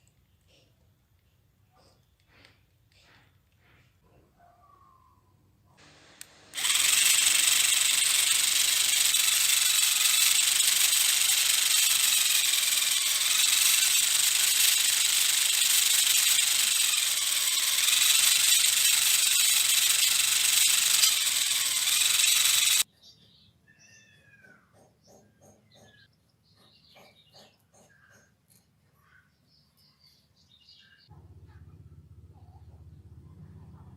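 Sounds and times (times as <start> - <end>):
electric motor whirring: 5.8 - 22.9.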